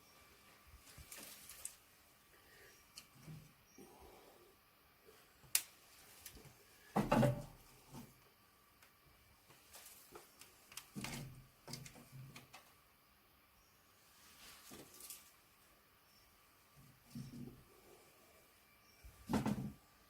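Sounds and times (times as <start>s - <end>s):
wood knocking and clattering: 6.9s - 7.6s, 19.2s - 19.8s.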